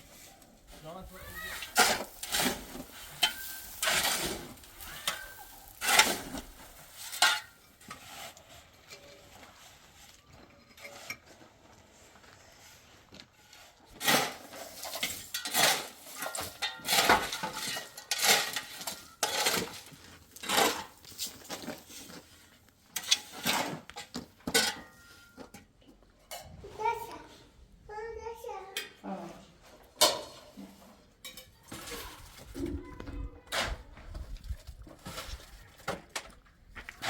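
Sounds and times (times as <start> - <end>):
metal tool scraping and clinking: 1.5 - 8.0.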